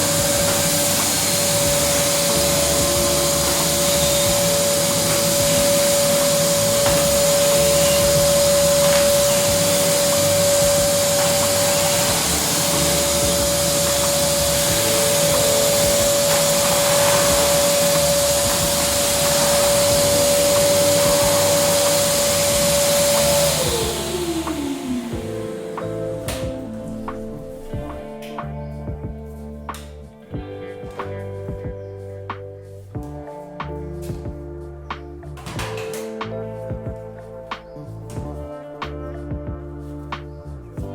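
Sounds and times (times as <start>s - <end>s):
vacuum cleaner motor whine: 0.0s - 28.2s.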